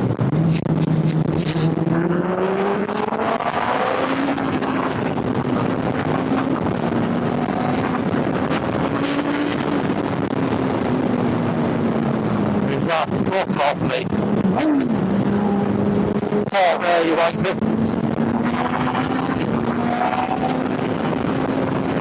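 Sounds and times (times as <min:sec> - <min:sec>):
motorcycle engine accelerating: 0:00.0 - 0:12.9, 0:14.0 - 0:22.0
wind and road noise: 0:00.0 - 0:22.0.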